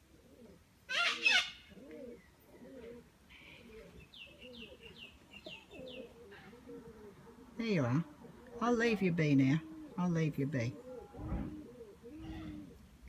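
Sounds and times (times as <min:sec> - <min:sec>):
pigeon cooing: 0:00.0 - 0:13.0
small bird chirping: 0:03.3 - 0:06.6.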